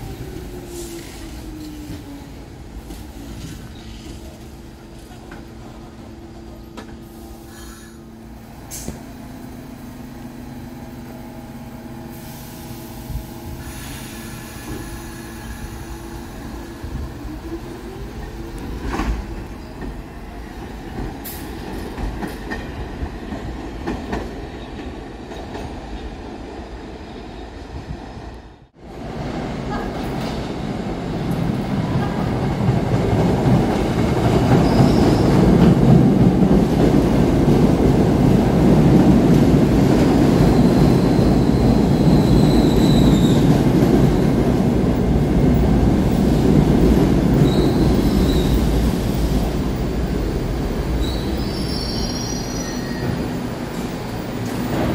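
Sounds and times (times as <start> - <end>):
train wheels clattering on rail: 18.2 - 25.9.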